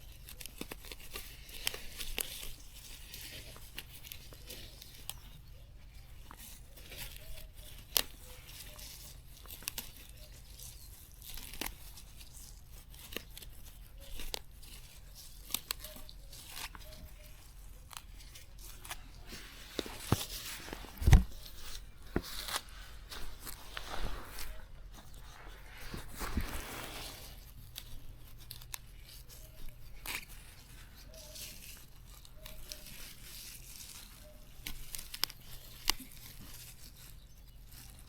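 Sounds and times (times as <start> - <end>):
leaves rustling: 0.0 - 38.0
plant stems snapping: 15.4 - 26.8, 34.0 - 36.5.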